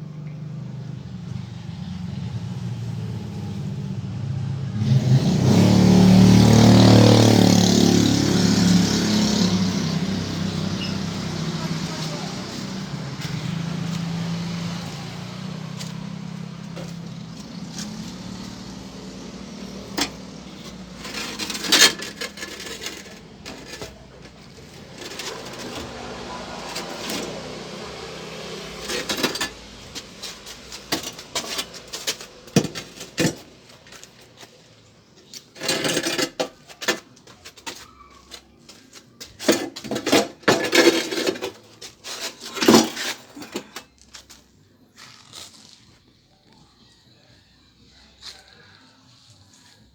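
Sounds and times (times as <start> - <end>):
tools and parts clattering: 6.2 - 45.8.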